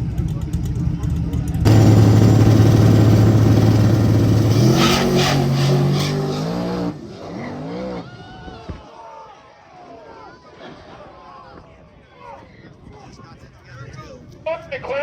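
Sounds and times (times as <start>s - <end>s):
drag race cars launching: 1.6s - 8.1s.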